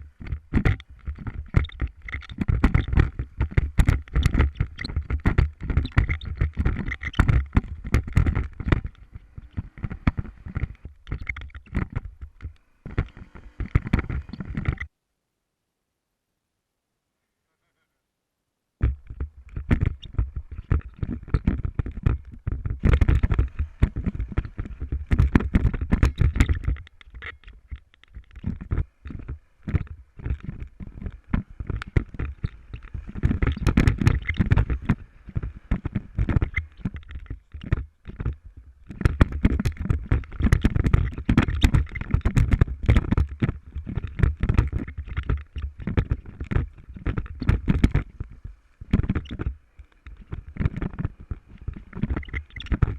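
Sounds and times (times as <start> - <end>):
knocks and rattles on microphone: 0.0 - 14.9, 18.8 - 52.9
wind buffeting microphone: 18.8 - 52.9.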